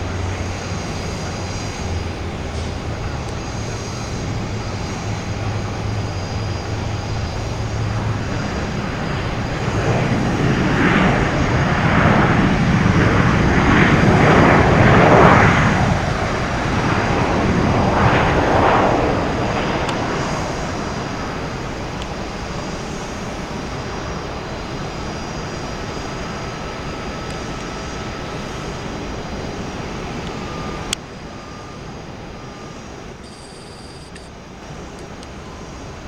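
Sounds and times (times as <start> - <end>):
jet engine rumble and whine: 0.0 - 36.0
click: 34.0 - 34.3.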